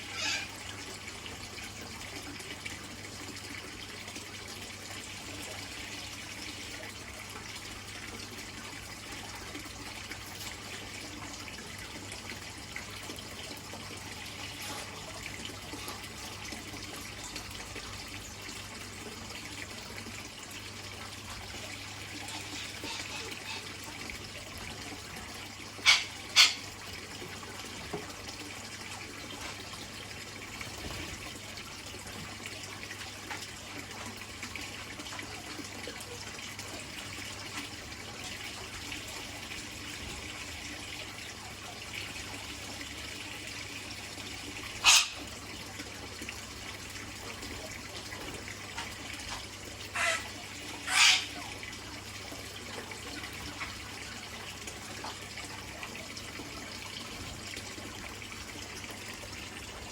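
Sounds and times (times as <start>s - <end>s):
trickling water: 0.0s - 59.9s
short loud bird calls: 50.9s - 51.3s.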